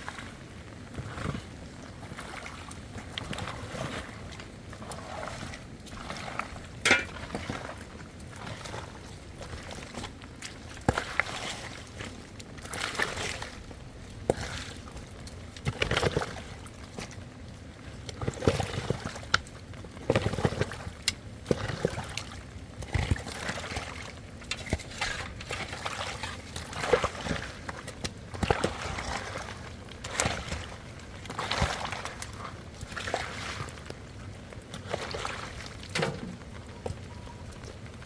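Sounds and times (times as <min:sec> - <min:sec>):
water sloshing and pouring: 0:00.0 - 0:38.0.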